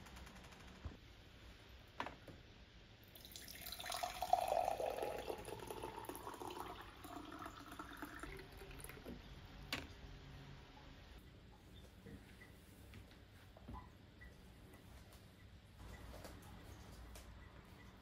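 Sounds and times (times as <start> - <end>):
tap water running into sink: 3.2 - 9.2.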